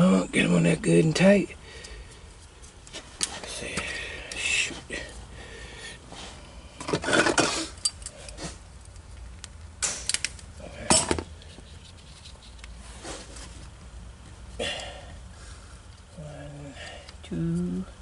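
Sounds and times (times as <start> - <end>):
metal tools clinking and rattling: 6.8 - 8.4, 10.8 - 11.2.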